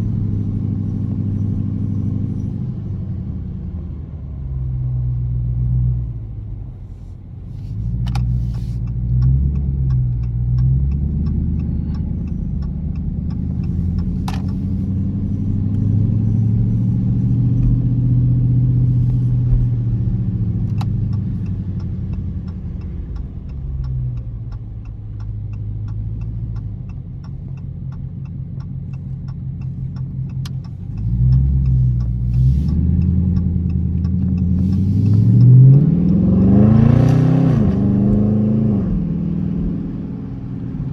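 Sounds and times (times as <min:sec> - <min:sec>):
car engine accelerating: 0:00.0 - 0:40.9.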